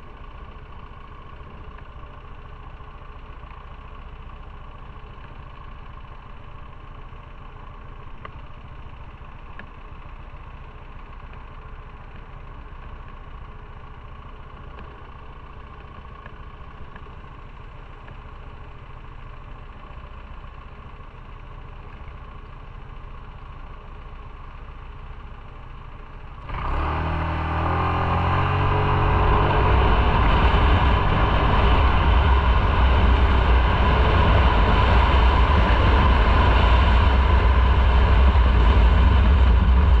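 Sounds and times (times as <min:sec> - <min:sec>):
motorcycle engine: 0:00.0 - 0:40.0
wind and road noise: 0:26.4 - 0:40.0.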